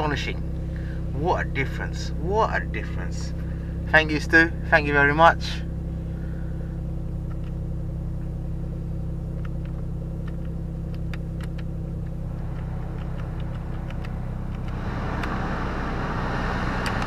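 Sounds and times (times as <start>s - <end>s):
car engine idling: 0.0s - 17.0s
light clicks: 9.3s - 15.3s.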